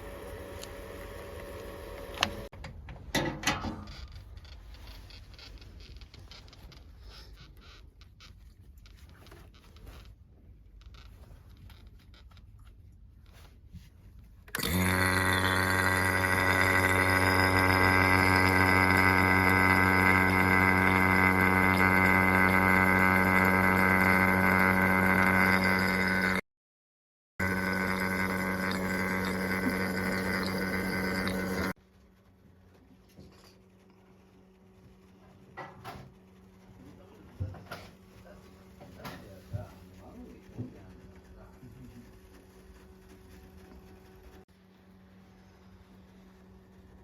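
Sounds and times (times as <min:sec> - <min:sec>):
electric machine humming: 0:00.0 - 0:02.5, 0:14.5 - 0:26.4, 0:27.4 - 0:31.8
faint scraping and rustling: 0:03.6 - 0:14.5, 0:31.1 - 0:47.0.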